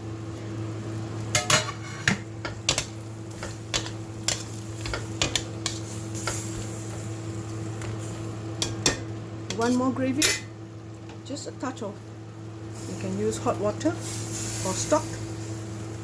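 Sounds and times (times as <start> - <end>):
steady low hum: 0.0 - 16.0
utensil scraping and clinking in pan: 1.4 - 7.0.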